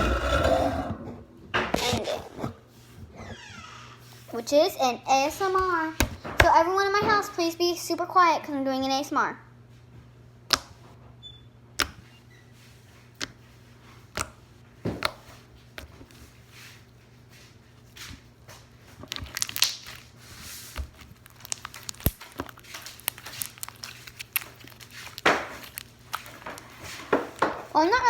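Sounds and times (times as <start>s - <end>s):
hands squishing slime: 18.9s - 28.0s.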